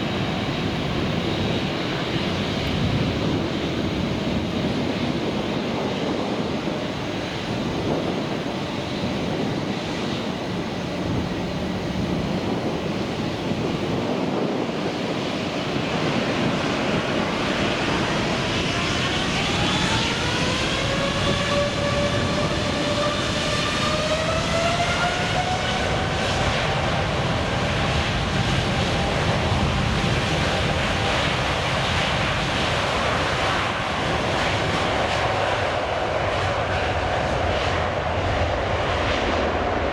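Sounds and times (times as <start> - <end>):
rising engine whine: 0.0 - 31.2
jet engines roaring: 0.0 - 39.9.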